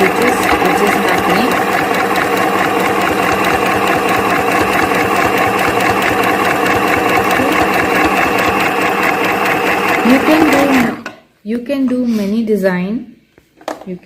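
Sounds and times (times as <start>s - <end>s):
sewing needle clatter: 0.0s - 10.8s
sewing machine motor whirring: 0.0s - 11.0s.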